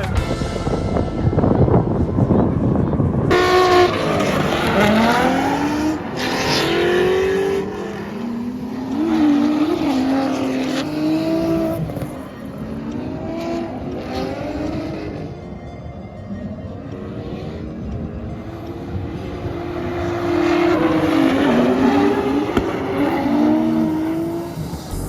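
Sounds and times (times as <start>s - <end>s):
car engine revving hard: 3.3s - 15.3s, 18.5s - 25.0s.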